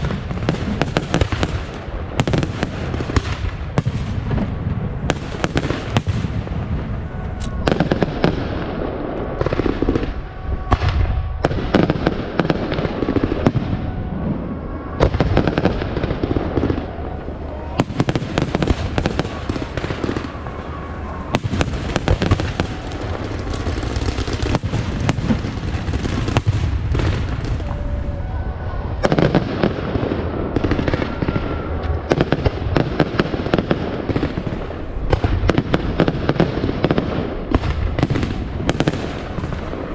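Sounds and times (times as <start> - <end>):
fireworks bangs and crackles: 0.0 - 39.9
low rumble: 2.8 - 36.0.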